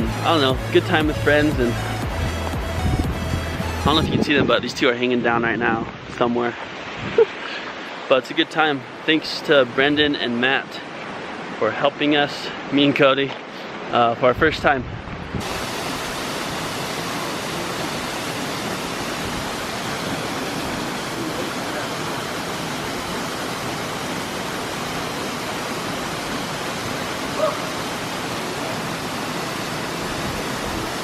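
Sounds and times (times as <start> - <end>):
waterfall rushing: 0.0 - 4.2, 15.4 - 31.0.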